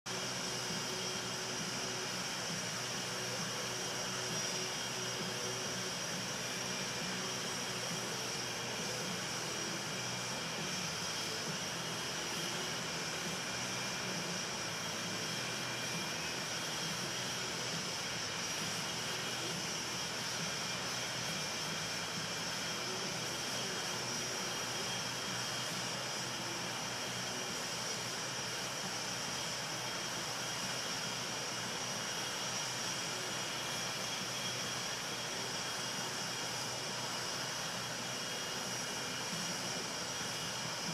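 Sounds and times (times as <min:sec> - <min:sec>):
jet engines whining: 0:00.1 - 0:40.9.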